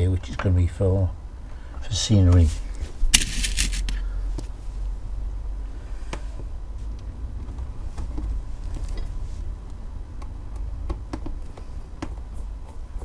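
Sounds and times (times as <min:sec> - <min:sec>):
small items clicking and knocking: 0:03.2 - 0:04.0.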